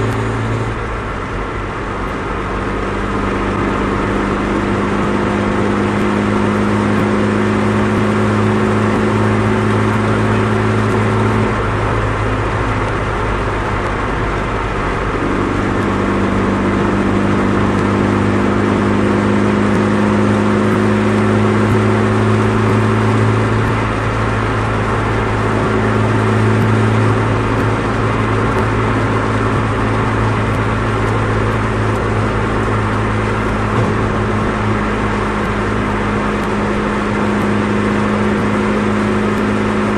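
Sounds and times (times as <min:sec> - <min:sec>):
car exhaust droning: 0:00.0 - 0:39.9.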